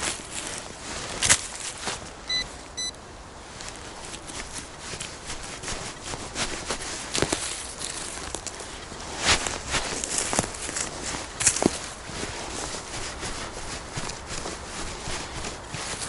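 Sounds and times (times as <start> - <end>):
footsteps crunching on leaf litter: 0.0 - 2.6, 3.4 - 16.0
metal detector beeps: 2.3 - 3.0.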